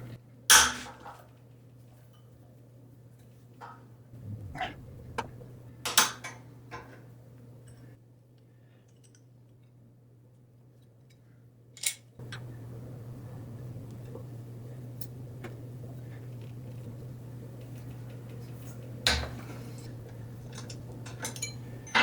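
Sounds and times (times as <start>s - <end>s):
steady low hum: 4.1s - 7.6s.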